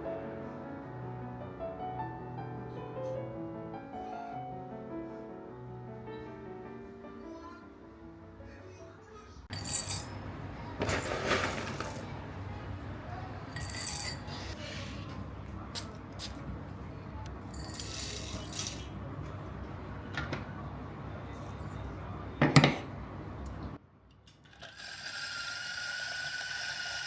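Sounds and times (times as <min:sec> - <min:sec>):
low background noise: 0:00.0 - 0:24.5
small hard objects clinking: 0:09.5 - 0:10.2, 0:10.8 - 0:12.2, 0:13.5 - 0:14.6.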